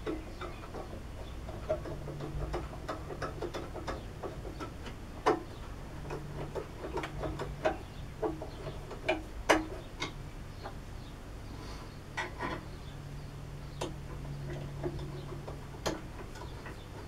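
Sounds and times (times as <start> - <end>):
small metal clicks and taps: 1.5 - 10.8, 13.7 - 17.0.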